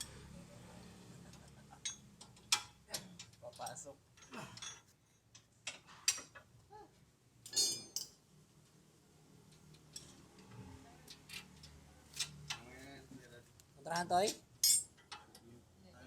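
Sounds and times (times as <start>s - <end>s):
metal tools clinking: 7.5s - 8.1s, 14.0s - 15.3s.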